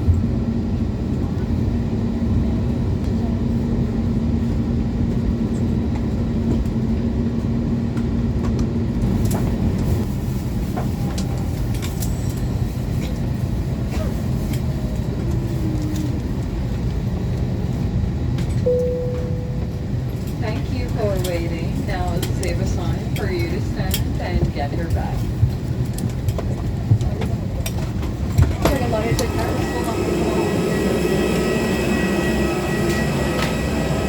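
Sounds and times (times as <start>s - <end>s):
aircraft cabin low rumble: 0.0s - 34.0s
held hum: 18.6s - 25.6s, 27.9s - 34.0s.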